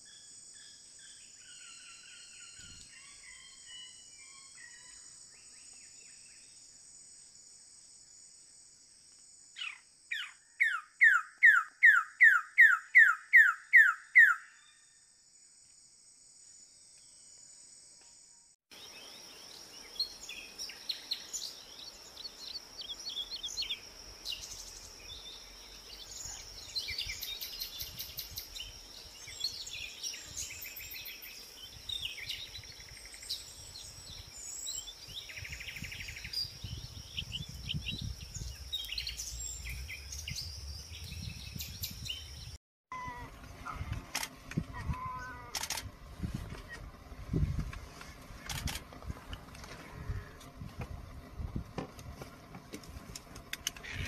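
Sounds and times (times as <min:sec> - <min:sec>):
high insect buzz: 0:15.2 - 0:41.5.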